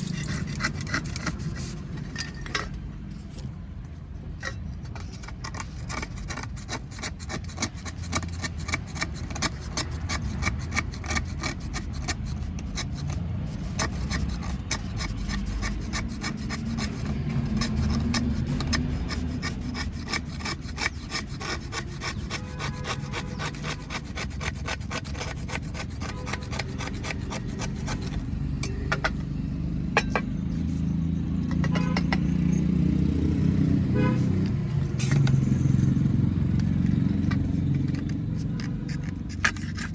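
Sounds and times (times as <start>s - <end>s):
clay cups crushing and crackling: 34.2s - 39.9s.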